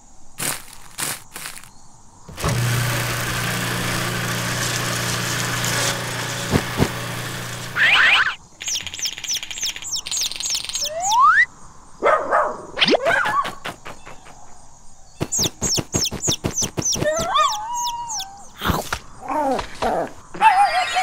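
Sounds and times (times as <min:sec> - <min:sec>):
machine motor humming: 0:02.3 - 0:07.9
chicks cheeping: 0:07.8 - 0:11.3, 0:15.2 - 0:18.6
quick clicks: 0:15.2 - 0:19.1.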